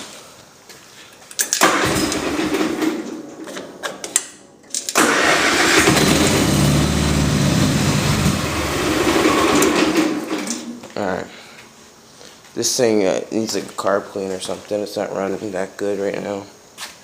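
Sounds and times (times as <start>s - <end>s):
lawn mower engine starting: 1.6s - 10.8s.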